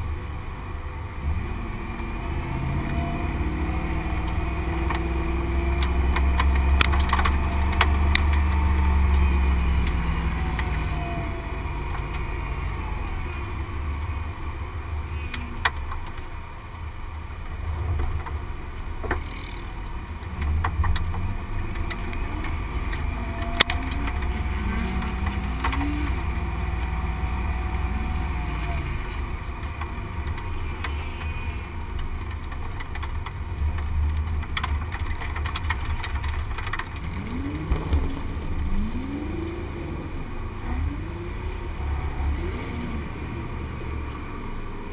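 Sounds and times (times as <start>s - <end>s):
car engine revving: 0.0s - 16.3s, 17.2s - 44.9s
heavy low rumble: 31.5s - 44.9s.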